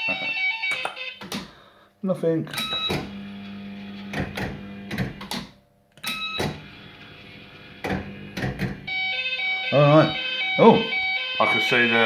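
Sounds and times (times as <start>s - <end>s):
electrical hum: 2.5s - 12.0s.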